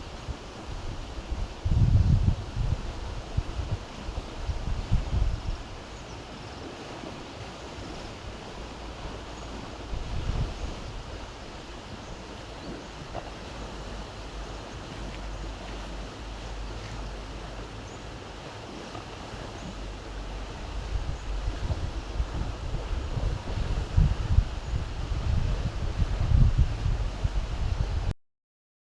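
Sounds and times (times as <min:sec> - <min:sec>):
wind buffeting microphone: 0:00.0 - 0:28.1.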